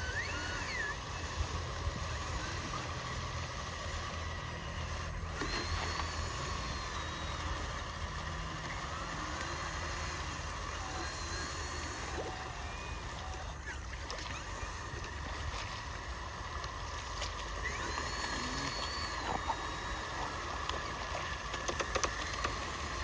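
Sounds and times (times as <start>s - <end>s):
electric motor low hum: 0.0s - 23.0s
motor high whine: 0.0s - 23.0s
faint high chirps: 12.3s - 14.8s.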